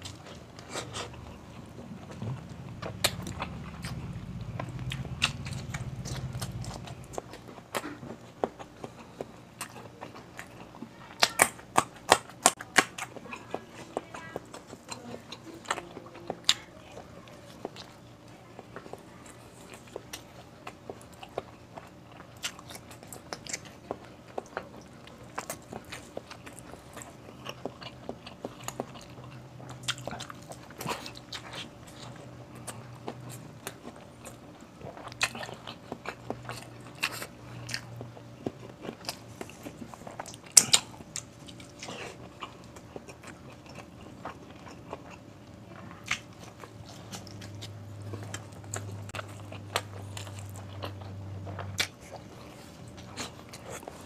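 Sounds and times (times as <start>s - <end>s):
person chewing and lip-smacking: 0.0s - 54.0s.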